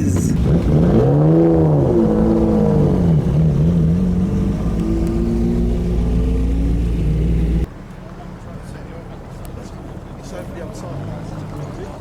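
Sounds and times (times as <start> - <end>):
car engine running under throttle: 0.0 - 7.7.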